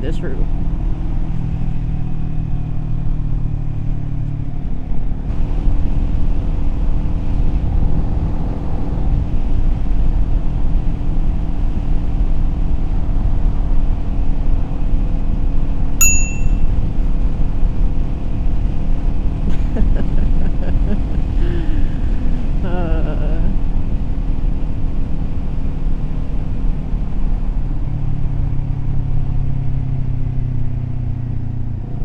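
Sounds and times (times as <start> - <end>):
road and wind rumble: 0.0 - 32.0
short high ding: 16.0 - 16.7.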